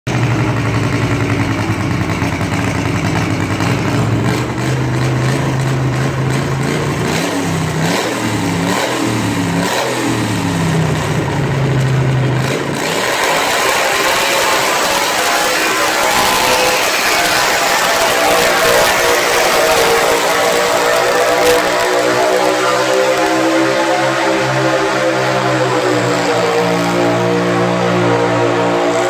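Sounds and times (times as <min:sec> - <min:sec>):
tractor engine running hard: 0:00.0 - 0:29.0.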